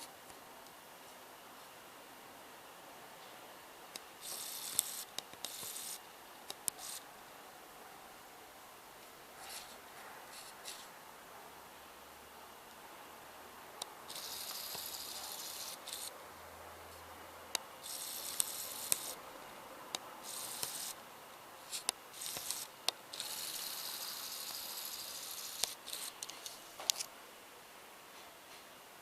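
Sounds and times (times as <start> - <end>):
sharp clicks: 4.0 - 5.9
high-pitched hissing: 14.1 - 16.1, 20.2 - 21.0.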